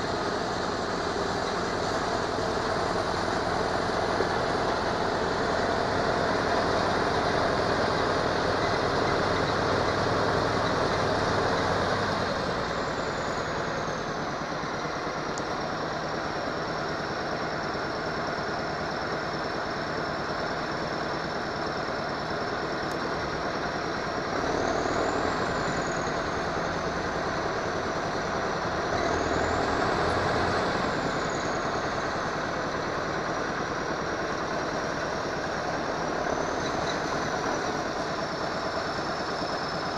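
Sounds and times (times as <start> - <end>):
diesel truck engine revving: 0.0 - 39.9.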